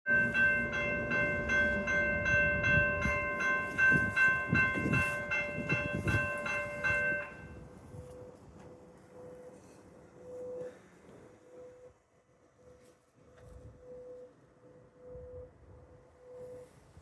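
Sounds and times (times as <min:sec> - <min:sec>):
crossing warning bell ringing: 0:00.0 - 0:08.1
train rumbling past: 0:00.1 - 0:07.8.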